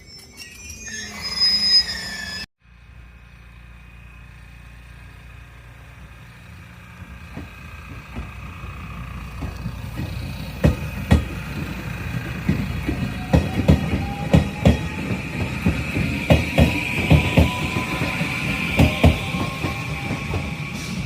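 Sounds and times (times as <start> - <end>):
train rumbling: 0.0 - 21.0
wheels clacking over rail joints: 4.7 - 21.0.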